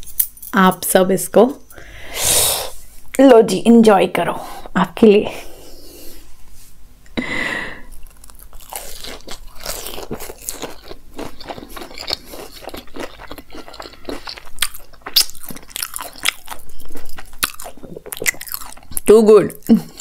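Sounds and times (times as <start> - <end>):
crunching crispy fried food: 7.9 - 20.0.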